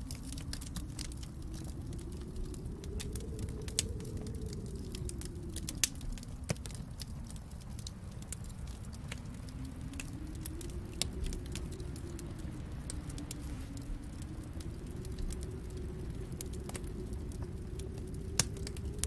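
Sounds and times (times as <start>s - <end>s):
fire pops and snaps: 0.0s - 19.0s
low steady rumble: 0.0s - 19.0s
wood fire crackling: 0.0s - 19.0s.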